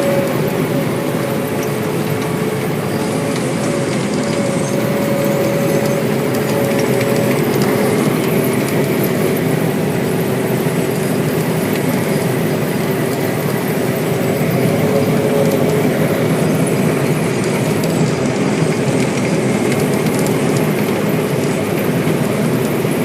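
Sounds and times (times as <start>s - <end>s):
harvester and tractor machinery: 0.0s - 23.0s
machinery whining: 0.0s - 23.0s.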